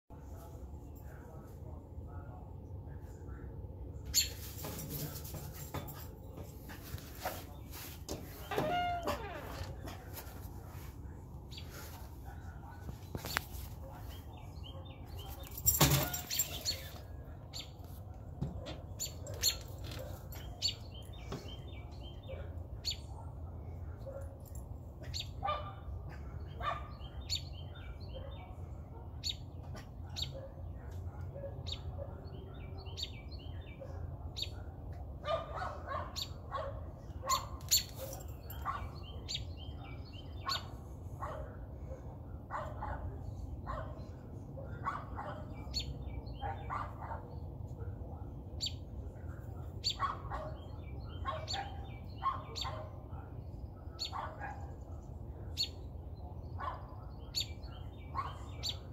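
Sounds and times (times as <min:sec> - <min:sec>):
small dog barking: 0:25.4 - 0:25.9, 0:26.6 - 0:27.0, 0:35.2 - 0:38.9, 0:40.4 - 0:41.6, 0:42.5 - 0:44.0, 0:44.6 - 0:45.5, 0:46.4 - 0:47.3, 0:49.8 - 0:53.0, 0:54.0 - 0:54.7, 0:56.6 - 0:56.9.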